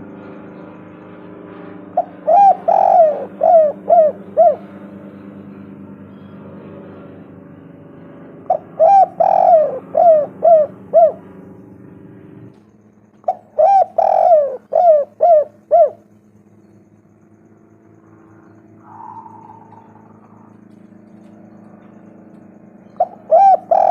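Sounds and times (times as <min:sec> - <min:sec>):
dove cooing: 0:01.9 - 0:05.2, 0:08.5 - 0:11.5, 0:13.2 - 0:16.2, 0:18.0 - 0:23.9
faint low hum: 0:08.4 - 0:23.9.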